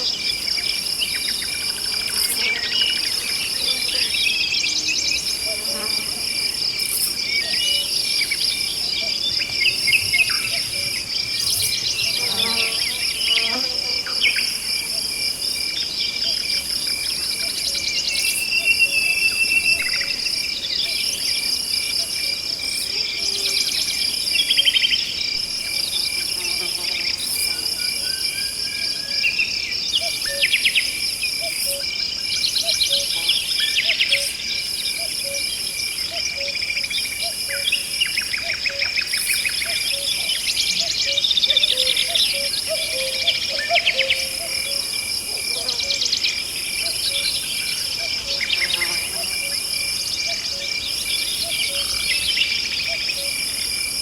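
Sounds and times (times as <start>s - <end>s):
insects trilling: 0.0s - 54.0s
pulsing insect buzz: 5.3s - 6.5s, 11.4s - 14.4s.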